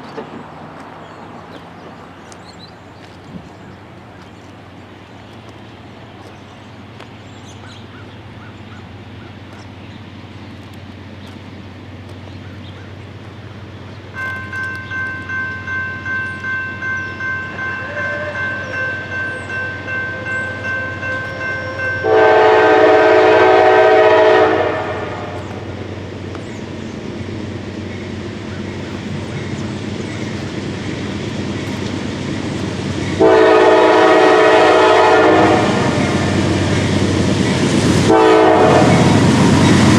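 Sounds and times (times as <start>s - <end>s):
diesel locomotive rumble: 0.0s - 39.9s
crossing warning bell ringing: 14.0s - 25.2s
locomotive air horn blasts: 17.4s - 25.4s, 33.2s - 36.6s, 38.0s - 39.3s.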